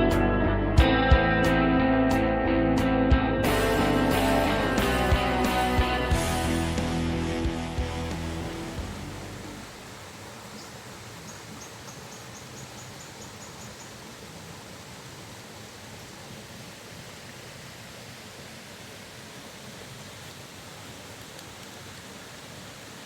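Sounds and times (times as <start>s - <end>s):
waterfall rushing: 3.5s - 11.9s, 14.0s - 23.0s.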